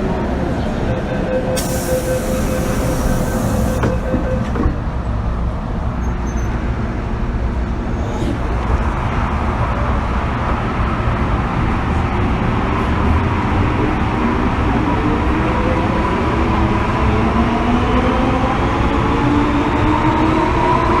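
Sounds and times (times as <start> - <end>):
train wheels rumbling on track: 0.0 - 21.0
train motor whine: 1.6 - 4.6.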